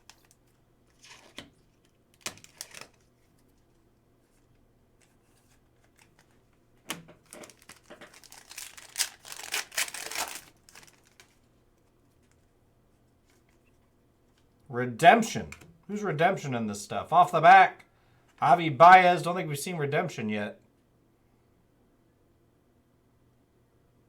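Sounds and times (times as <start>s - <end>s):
foil wrapper crinkling and tearing: 0.0s - 3.8s, 5.8s - 12.4s
cards being handled: 0.0s - 12.5s.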